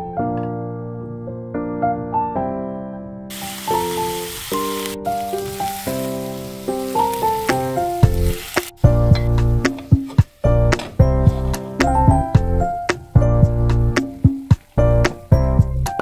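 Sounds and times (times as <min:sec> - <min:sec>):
piano background music: 0:00.0 - 0:16.0
vegetables sizzling in a frying pan: 0:03.3 - 0:10.4.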